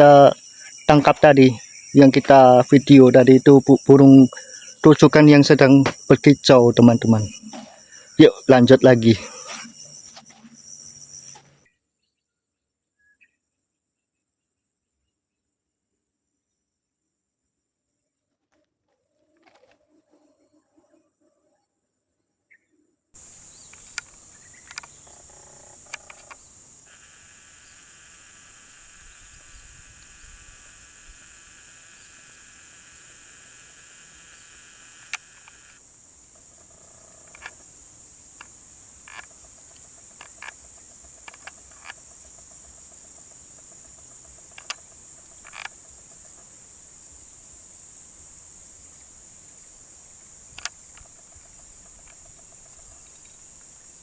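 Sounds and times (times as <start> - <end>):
high-pitched insect chorus: 0.0 - 11.7, 23.2 - 54.0
lower buzzing insect chorus: 0.0 - 11.8, 23.2 - 54.0
sharp clicks and snaps: 23.7 - 25.0, 44.5 - 44.8, 50.6 - 51.1.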